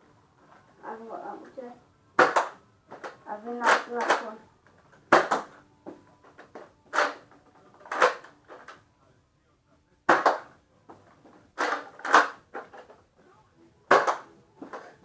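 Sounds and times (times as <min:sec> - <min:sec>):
toy blaster plastic clacks: 0:02.2 - 0:04.4, 0:05.1 - 0:05.6, 0:06.4 - 0:08.8, 0:11.6 - 0:12.9, 0:13.9 - 0:14.9.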